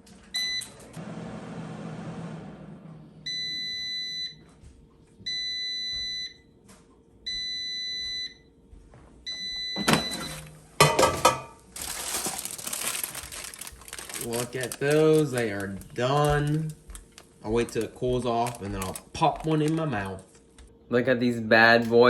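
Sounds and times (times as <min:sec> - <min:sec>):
air fryer fan hum: 0:00.0 - 0:22.0
air fryer beeps: 0:00.3 - 0:01.0, 0:03.2 - 0:04.5, 0:05.3 - 0:06.6, 0:07.3 - 0:08.6, 0:09.2 - 0:11.0.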